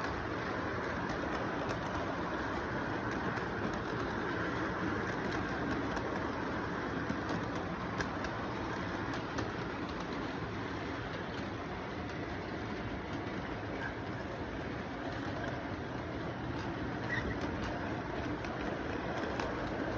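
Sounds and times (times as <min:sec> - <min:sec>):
light track clicks: 0:00.0 - 0:19.9
model train rumbling on track: 0:00.0 - 0:19.9.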